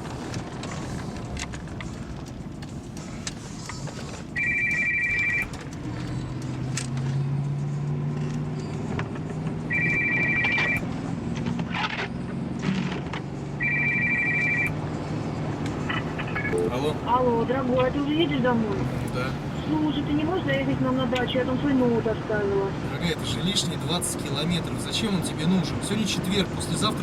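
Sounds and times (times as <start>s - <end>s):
car running noise: 0.0s - 27.0s
phone ringing electronic trill: 4.4s - 5.5s, 9.7s - 10.8s, 13.6s - 14.7s.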